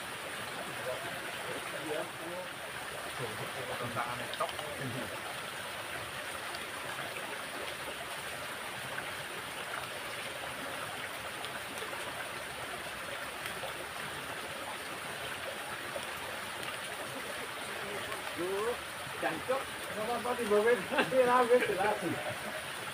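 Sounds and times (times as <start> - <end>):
water rushing in a ditch: 0.0 - 22.9.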